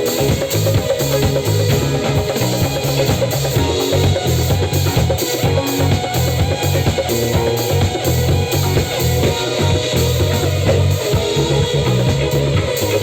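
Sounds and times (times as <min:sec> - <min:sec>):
drum kit and bass beat: 0:00.0 - 0:13.0
live trance band playing: 0:00.0 - 0:13.0.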